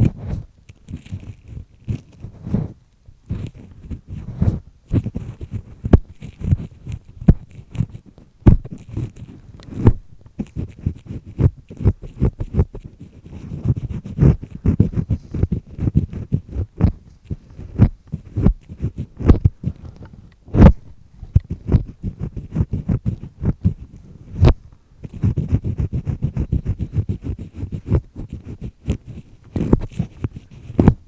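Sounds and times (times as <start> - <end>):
earpick scraping in ear canal: 0.0 - 31.0.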